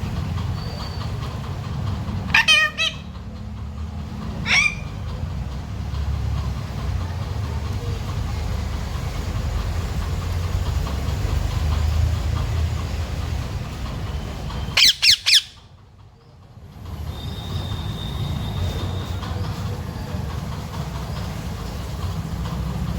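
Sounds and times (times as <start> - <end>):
parrot squawking: 2.2 - 3.2, 4.3 - 5.2, 14.8 - 15.6.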